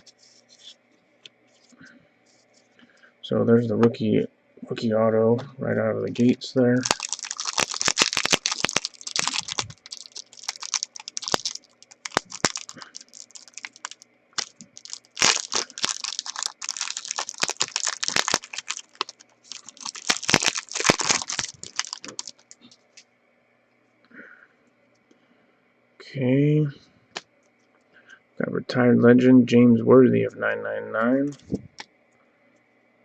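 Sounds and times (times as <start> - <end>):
card packaging crinkling: 6.2 - 23.0.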